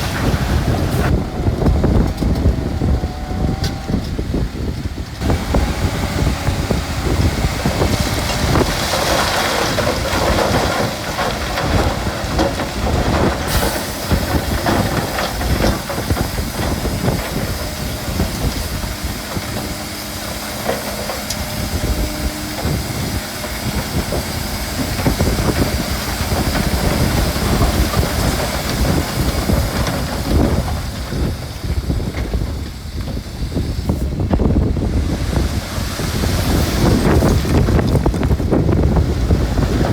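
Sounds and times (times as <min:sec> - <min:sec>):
bulldozer diesel engine: 0:00.0 - 0:39.9
steel tracks clattering on stone: 0:04.1 - 0:33.2.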